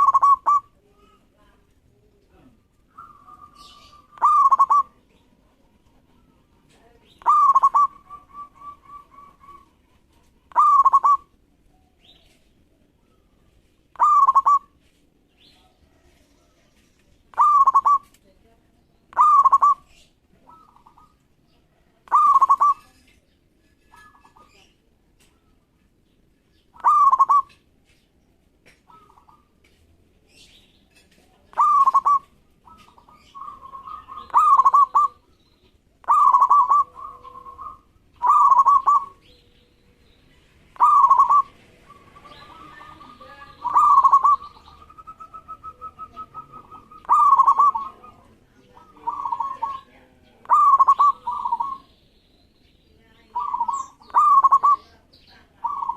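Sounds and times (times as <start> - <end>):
dove cooing: 0.0 - 1.3, 2.8 - 11.4, 13.9 - 14.8, 17.3 - 18.1, 19.1 - 23.0, 26.7 - 27.6, 28.8 - 29.5, 31.5 - 35.3, 36.0 - 39.6, 40.7 - 51.9, 53.2 - 55.9.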